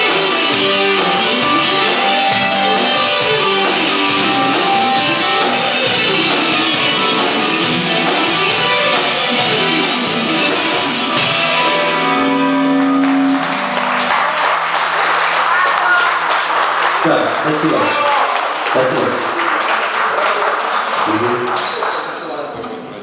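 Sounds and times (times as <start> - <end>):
guitar with sliding bending notes: 0.0 - 14.3
live rock band playing: 0.0 - 16.0.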